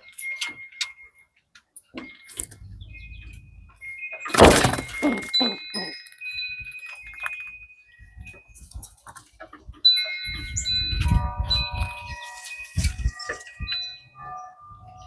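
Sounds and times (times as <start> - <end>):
metallic chimes ringing: 0.0 - 9.0, 9.8 - 15.0
harsh crash-like bursts: 4.3 - 5.2.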